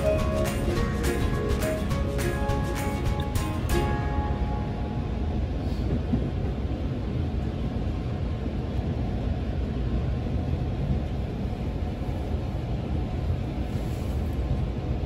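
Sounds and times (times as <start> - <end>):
electric train rumble: 0.0 - 15.0.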